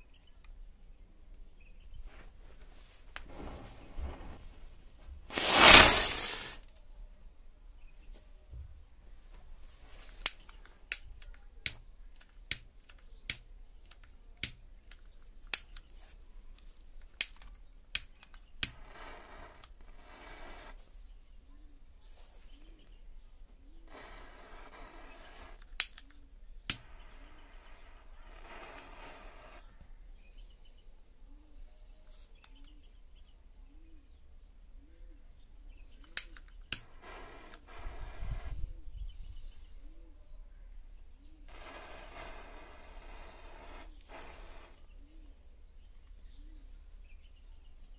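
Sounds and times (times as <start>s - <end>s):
matches hissing and flaring: 5.3s - 6.6s, 23.9s - 25.8s, 26.7s - 29.7s, 36.8s - 38.7s, 41.5s - 44.8s
short hiss: 5.3s - 6.6s, 41.5s - 44.8s
sharp cracks: 5.3s - 6.7s, 17.0s - 19.0s, 23.9s - 29.6s
sharp clicks: 10.2s - 15.9s, 17.0s - 18.8s, 25.6s - 27.0s.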